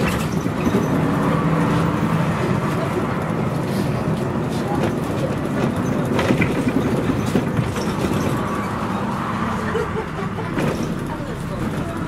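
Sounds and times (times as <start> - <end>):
bus body knocks and rattles: 0.0 - 12.0
bus diesel engine running: 0.0 - 12.0.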